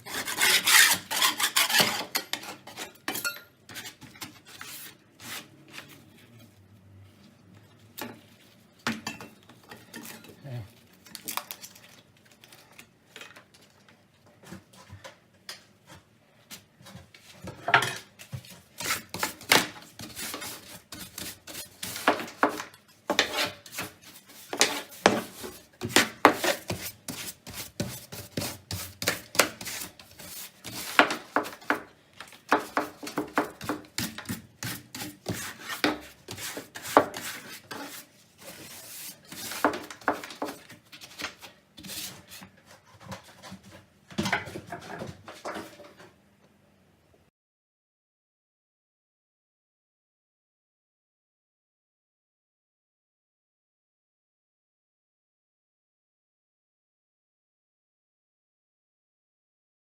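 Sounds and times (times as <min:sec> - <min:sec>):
rubbing and scraping on hard surface: 0:00.0 - 0:02.9, 0:03.7 - 0:07.4, 0:18.4 - 0:43.9.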